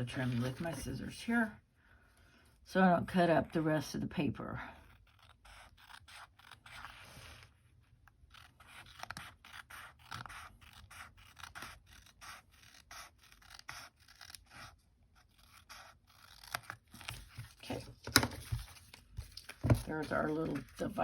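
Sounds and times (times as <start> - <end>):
scissors snipping paper: 8.3 - 20.9.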